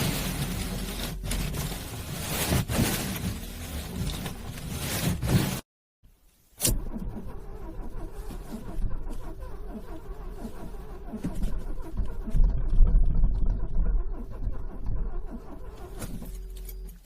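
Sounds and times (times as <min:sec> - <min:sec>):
starter motor cranking engine: 0:06.6 - 0:16.8.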